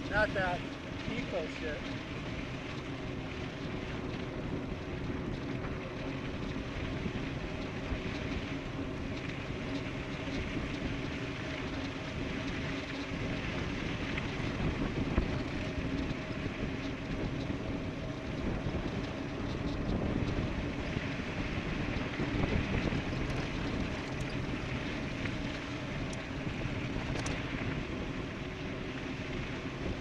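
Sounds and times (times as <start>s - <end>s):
bicycle tyre noise: 0.0s - 30.0s
wind rushing across microphone: 0.0s - 30.0s
faint ticks: 22.3s - 26.3s, 26.9s - 27.8s.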